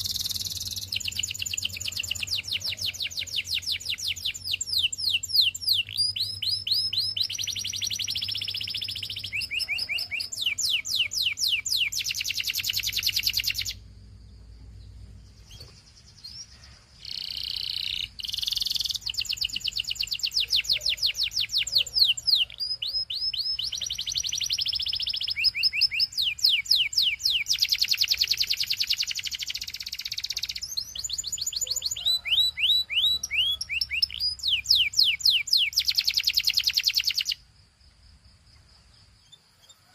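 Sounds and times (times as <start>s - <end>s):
canary singing: 0.0s - 13.9s, 14.8s - 37.4s.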